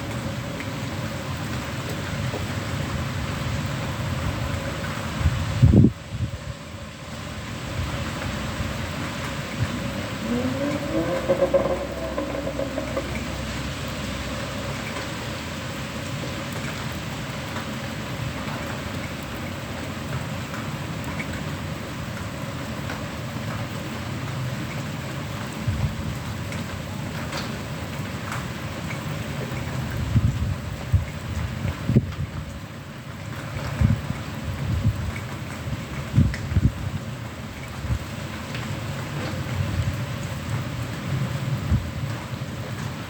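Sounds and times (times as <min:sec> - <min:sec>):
steady rain falling: 0:00.0 - 0:43.0
low thumps: 0:09.7 - 0:14.0
short rising tone: 0:09.7 - 0:14.0.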